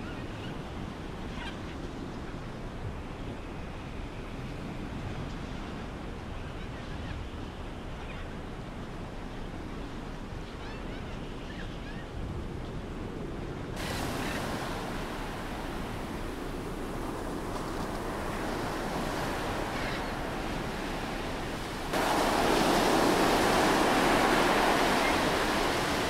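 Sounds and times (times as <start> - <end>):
ocean surf: 13.8 - 26.0.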